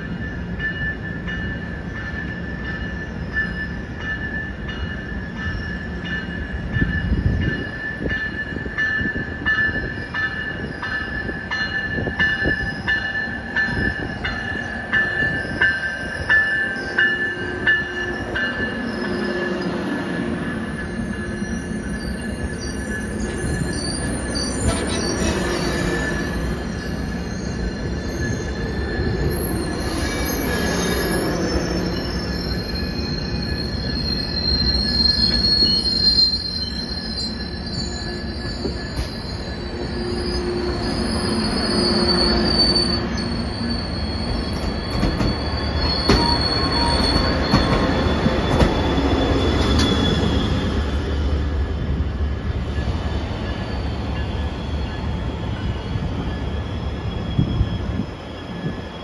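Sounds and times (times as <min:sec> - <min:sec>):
low train rumble: 0:00.0 - 0:59.0
train wheels squealing: 0:00.0 - 0:59.0.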